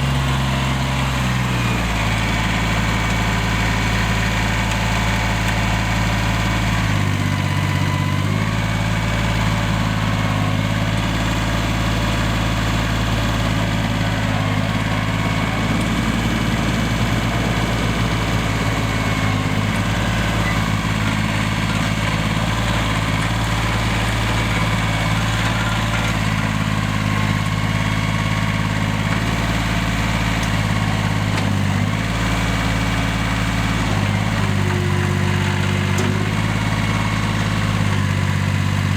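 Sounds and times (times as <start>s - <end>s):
tractor diesel engine idling: 0.0s - 38.9s.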